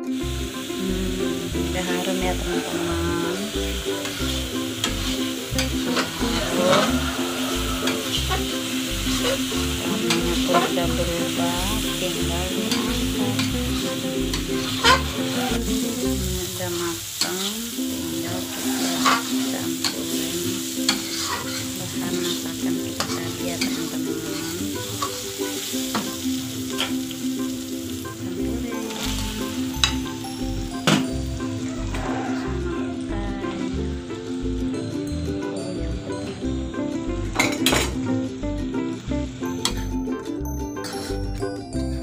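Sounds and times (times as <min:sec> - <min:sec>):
prawns sizzling in a pan: 0:00.0 - 0:35.0, 0:36.7 - 0:40.2, 0:40.8 - 0:41.5
spatula scraping and knocking pan: 0:12.6 - 0:15.4, 0:20.9 - 0:25.1.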